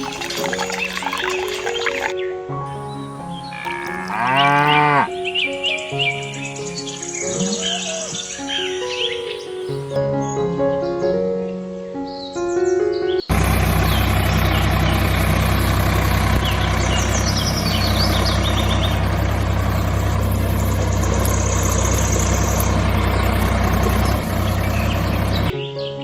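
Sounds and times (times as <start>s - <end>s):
birds chirping: 0.0s - 10.0s, 13.1s - 25.6s
motor humming: 2.8s - 5.2s, 13.3s - 25.5s.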